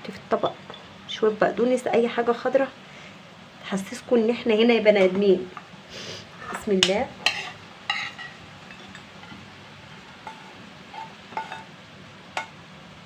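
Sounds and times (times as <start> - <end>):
metal utensil clinking on pan and plate: 6.8 - 9.4, 10.2 - 11.7.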